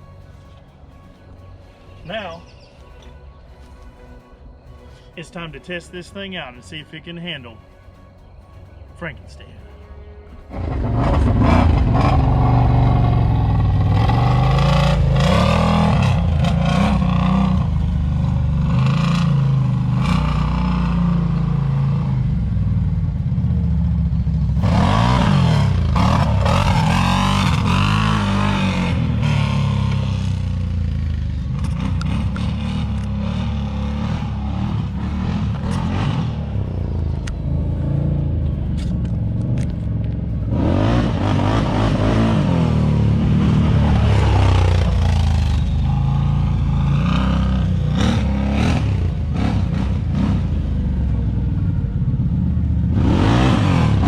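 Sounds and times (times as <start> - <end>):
atv engine revving: 10.5 - 54.0
clatter: 30.8 - 33.2.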